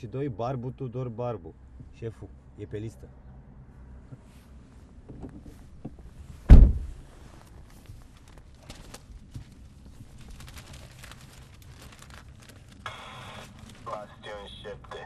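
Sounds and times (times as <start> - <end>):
faint clicks and rustles: 4.0 - 14.2
heavy thump: 6.4 - 7.1.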